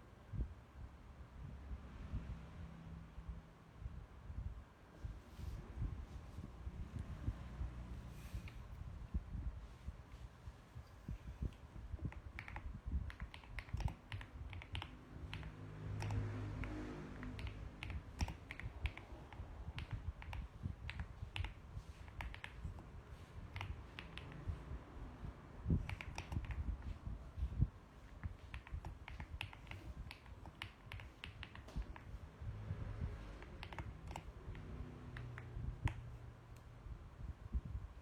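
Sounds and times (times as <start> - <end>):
mechanical keyboard keystroke clicks: 12.1 - 22.8, 23.5 - 24.4, 25.8 - 26.7, 28.1 - 32.1, 33.4 - 36.0.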